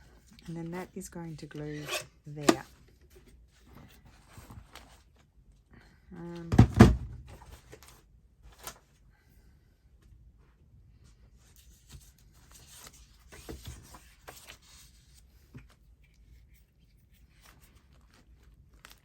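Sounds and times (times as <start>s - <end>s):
paper rustling: 11.5s - 15.7s, 17.2s - 19.0s.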